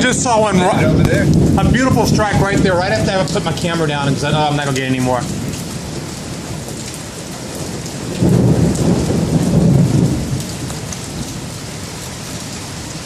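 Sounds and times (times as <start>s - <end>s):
low rumble of thunder: 0.0s - 13.0s
steady rain: 0.0s - 13.0s.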